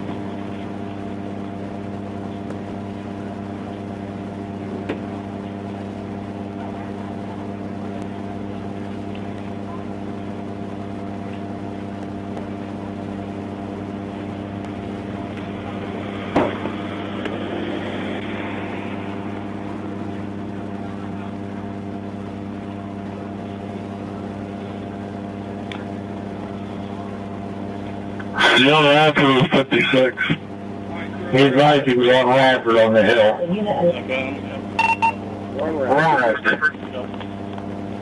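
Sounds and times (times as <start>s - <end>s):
idling vehicle engine hum: 12.3s - 34.6s.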